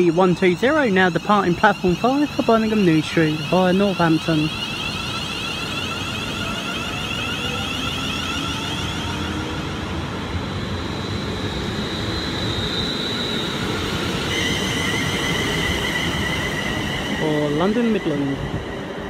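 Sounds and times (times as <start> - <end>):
electric drive whining: 0.0 - 11.7
electric train running: 0.0 - 19.0.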